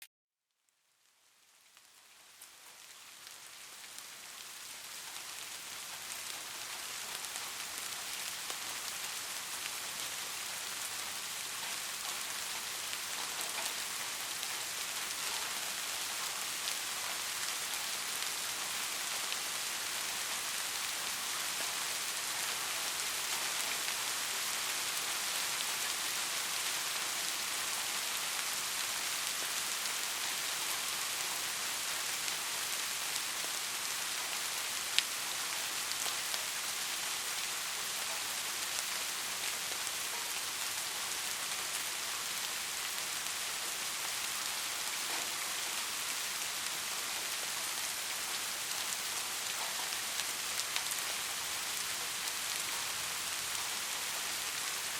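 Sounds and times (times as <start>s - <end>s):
rain falling: 1.0s - 54.9s.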